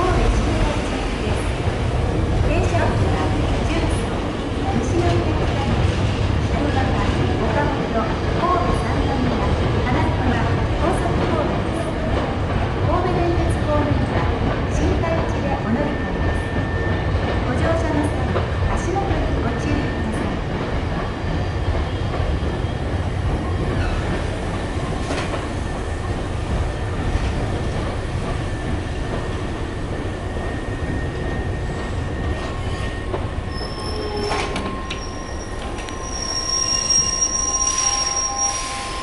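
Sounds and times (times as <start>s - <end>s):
electric train rumbling: 0.0s - 39.0s
thin train whine: 19.4s - 39.0s
high brake squeals: 32.3s - 39.0s.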